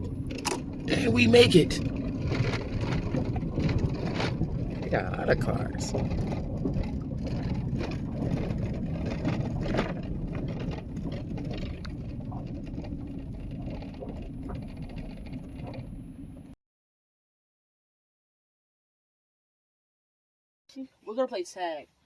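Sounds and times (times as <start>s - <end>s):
car rumble inside cabin: 0.0s - 16.6s.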